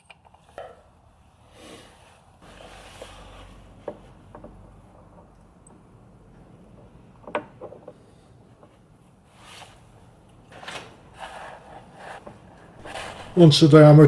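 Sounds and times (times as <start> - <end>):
short scraping sliding noises: 12.8 - 13.8.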